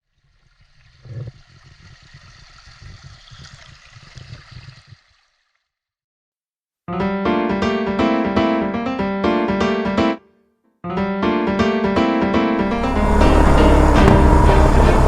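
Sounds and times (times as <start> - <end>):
low rumble: 12.6 - 15.0.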